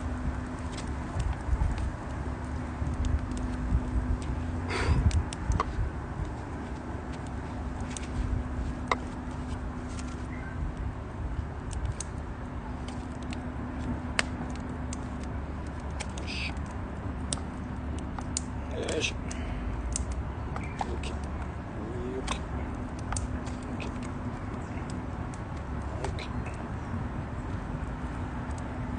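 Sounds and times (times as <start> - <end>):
wood fire crackling: 0.0 - 28.9.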